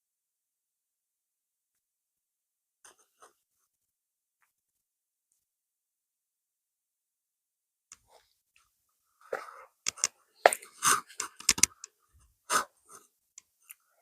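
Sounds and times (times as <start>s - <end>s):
person breathing: 9.2s - 13.1s.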